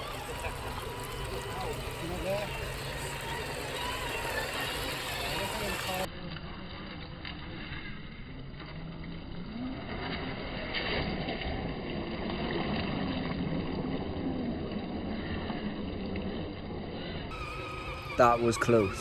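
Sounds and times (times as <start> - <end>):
electric motor whining: 0.0 - 6.1, 17.3 - 19.0.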